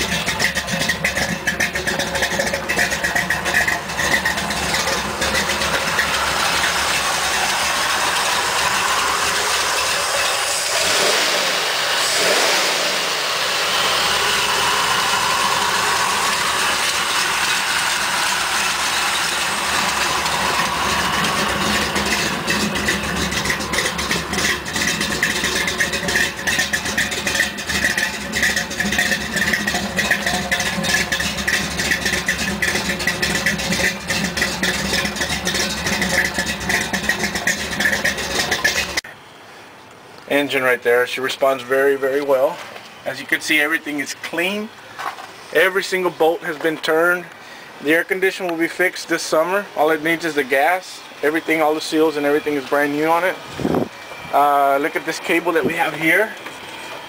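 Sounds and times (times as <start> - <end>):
pickup engine running and revving: 0.0 - 39.0.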